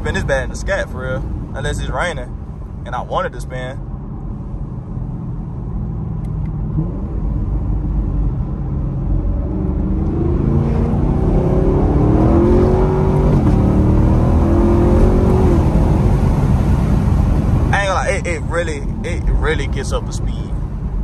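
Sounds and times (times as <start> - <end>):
car engine accelerating hard: 4.8 - 20.9.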